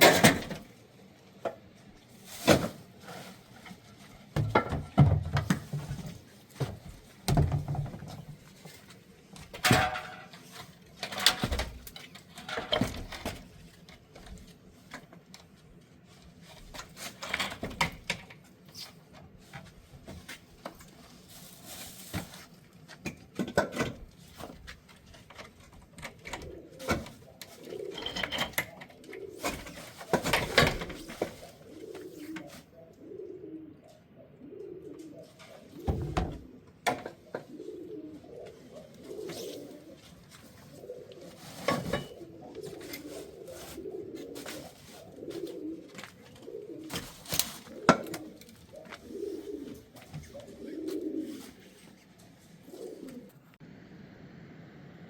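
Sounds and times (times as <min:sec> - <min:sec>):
pigeons cooing: 0:25.5 - 0:53.6.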